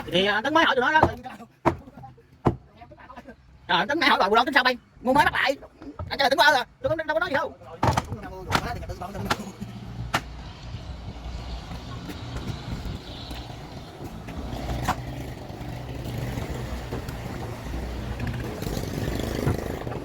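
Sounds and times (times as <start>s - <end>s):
engine droning: 9.4s - 20.0s.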